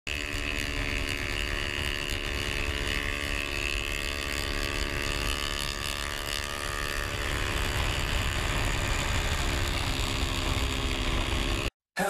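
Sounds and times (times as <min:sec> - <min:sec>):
motorcycle engine running: 0:00.0 - 0:11.7
wind rushing over microphone: 0:04.4 - 0:11.7.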